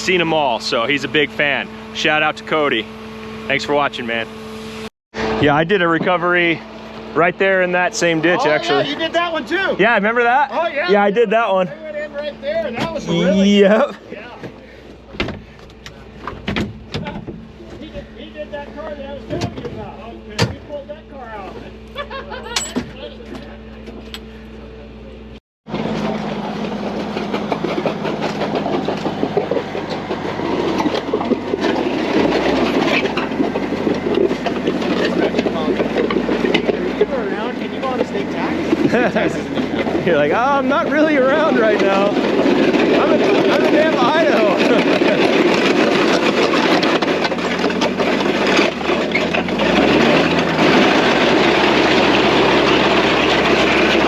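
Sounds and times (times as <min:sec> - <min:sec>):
engine humming: 0:00.0 - 0:54.0
heavy machine rattling clatter: 0:25.7 - 0:54.0.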